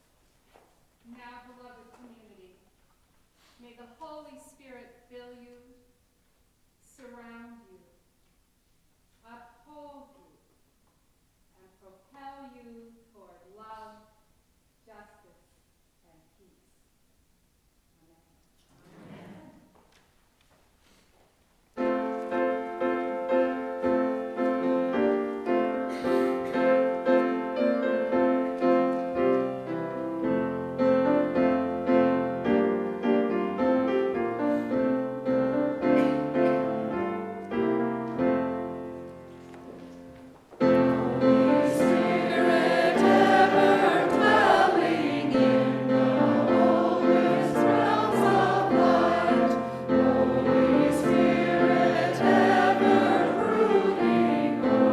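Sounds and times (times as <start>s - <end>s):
slow piano playing: 21.8s - 54.9s
group of voices singing: 40.8s - 54.9s.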